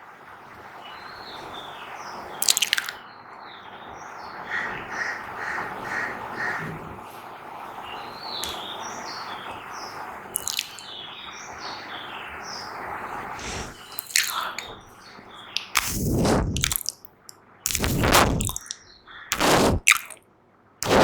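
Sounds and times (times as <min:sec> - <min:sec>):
wet mouth pops: 0:02.4 - 0:03.0, 0:10.4 - 0:10.8, 0:13.9 - 0:14.8, 0:15.5 - 0:20.2
steady hiss: 0:12.5 - 0:17.0
high chirping: 0:13.4 - 0:20.2.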